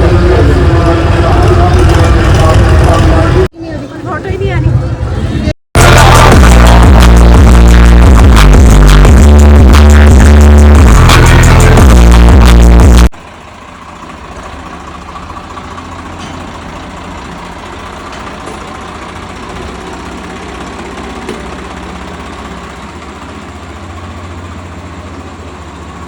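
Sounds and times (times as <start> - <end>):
tractor engine running: 0.0 - 26.0
loud electronic music: 5.8 - 13.2.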